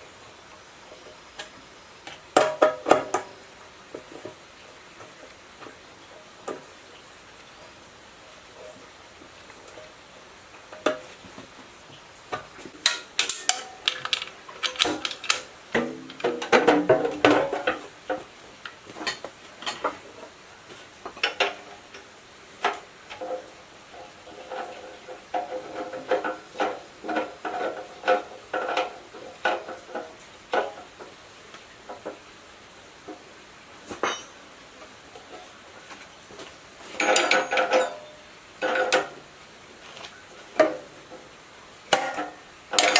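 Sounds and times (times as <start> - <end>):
metal tools clinking: 12.9 - 16.9, 33.9 - 34.4, 36.8 - 39.2, 42.1 - 42.9.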